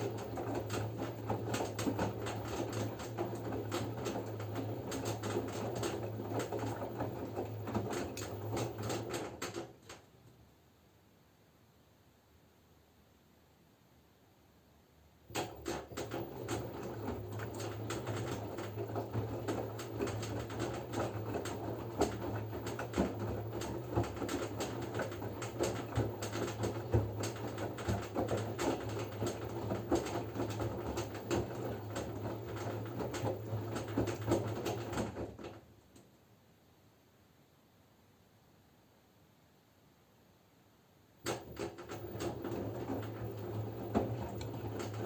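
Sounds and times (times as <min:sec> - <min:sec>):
laundry and water tumbling: 0:00.0 - 0:10.0, 0:15.3 - 0:35.6, 0:41.2 - 0:45.0
washing machine motor hum: 0:00.0 - 0:10.2, 0:15.2 - 0:35.7, 0:41.2 - 0:45.0.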